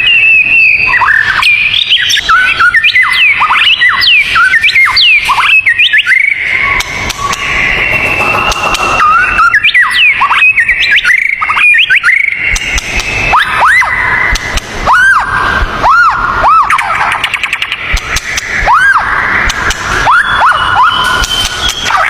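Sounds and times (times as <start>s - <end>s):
songbird whistling: 0.0s - 15.2s, 20.0s - 22.0s
steady high tone: 5.1s - 16.4s.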